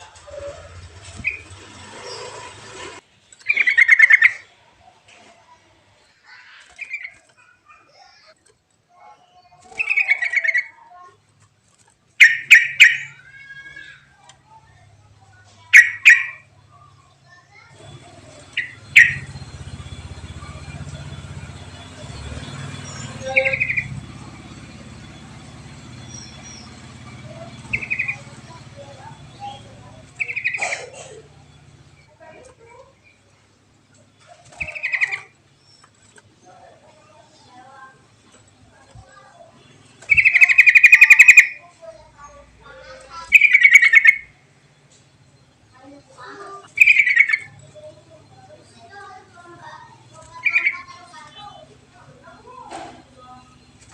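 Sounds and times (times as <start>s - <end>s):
bird call: 0.0s - 2.4s, 3.4s - 4.6s, 9.2s - 10.8s, 12.2s - 14.8s, 15.4s - 33.3s, 33.9s - 37.6s, 38.7s - 53.9s
bird bubbling trill: 18.4s - 21.2s, 26.0s - 28.4s, 40.1s - 41.7s, 43.0s - 44.4s, 45.8s - 48.8s.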